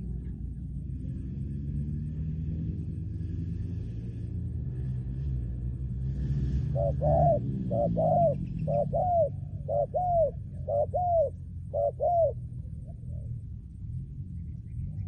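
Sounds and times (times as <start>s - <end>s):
dove cooing: 6.4s - 13.4s.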